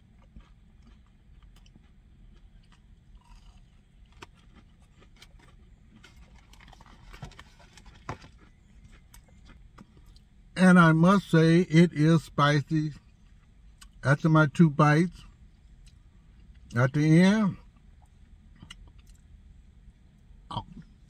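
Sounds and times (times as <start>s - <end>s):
chewing crispy food: 0.0s - 10.6s, 15.0s - 19.4s
low steady hum: 0.0s - 21.0s.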